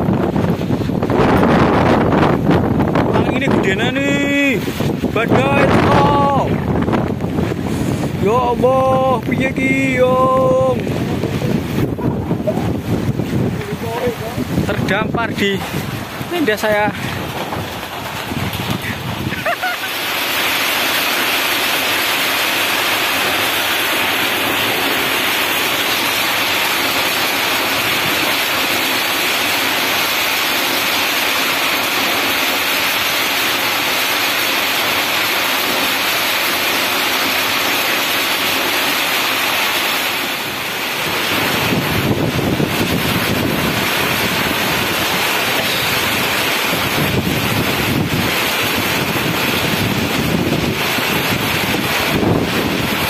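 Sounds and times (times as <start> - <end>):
wind buffeting microphone: 0.0 - 19.5, 40.4 - 53.0
heavy rain on water: 0.0 - 53.0.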